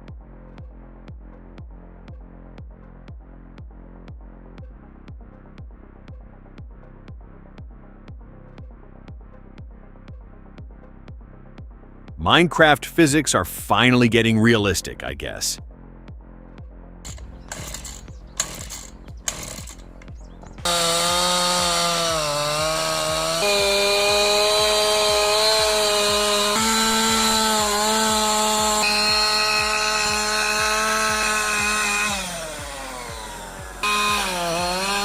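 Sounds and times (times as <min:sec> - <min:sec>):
music beat: 0:12.2 - 0:15.6, 0:19.9 - 0:35.0
chainsaw cutting wood: 0:17.1 - 0:35.0.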